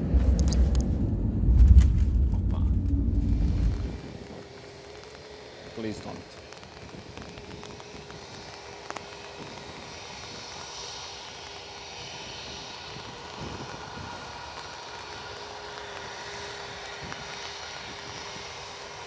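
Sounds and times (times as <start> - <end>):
jet engines roaring and whining: 0.0 - 19.0.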